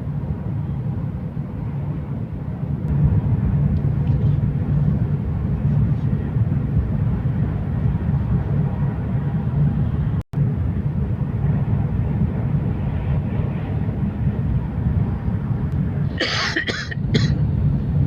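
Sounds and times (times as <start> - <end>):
train running low rumble: 0.0 - 18.0
person coughing: 16.2 - 17.4.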